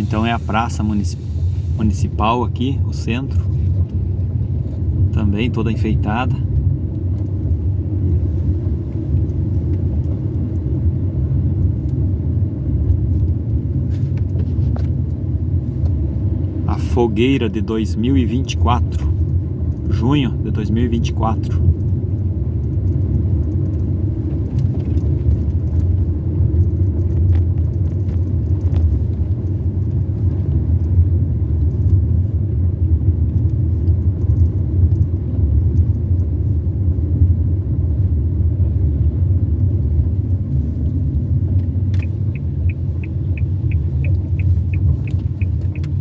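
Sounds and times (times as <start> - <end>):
car engine and road noise: 0.0 - 46.0
evenly paced ticking: 42.0 - 46.0.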